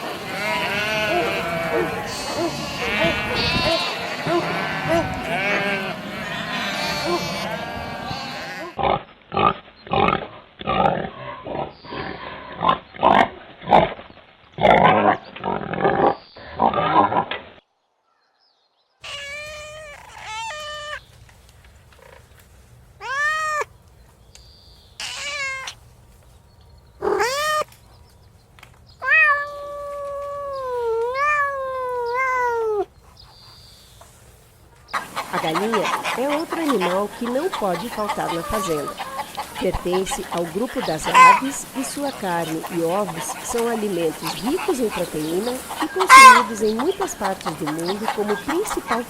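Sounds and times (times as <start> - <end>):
cat meowing: 0.4 - 8.8, 19.0 - 21.0, 23.0 - 23.7, 25.0 - 25.8, 27.0 - 27.7, 29.0 - 32.9
rapid short animal calls: 27.0 - 27.7, 35.0 - 49.0.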